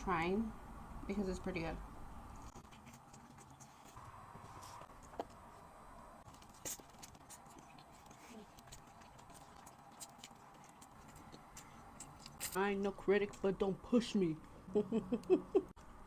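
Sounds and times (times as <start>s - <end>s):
quiet chewing: 2.3s - 12.6s.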